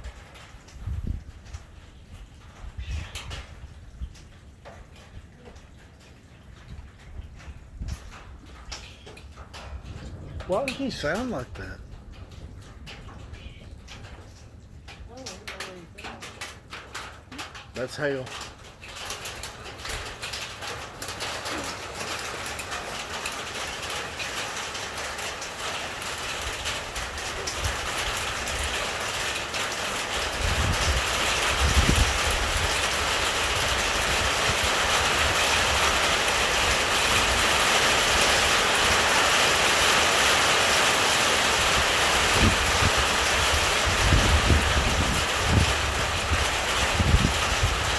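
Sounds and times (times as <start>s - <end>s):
hailstones rattling: 0.0s - 47.9s
heavy rain hiss: 10.1s - 11.9s, 17.3s - 47.9s.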